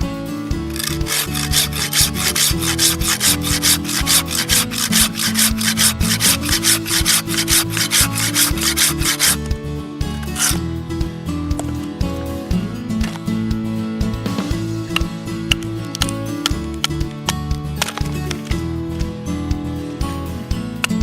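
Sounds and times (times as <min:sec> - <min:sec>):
background music: 0:00.0 - 0:21.0
saw cutting through wood: 0:00.7 - 0:09.5, 0:10.2 - 0:10.6.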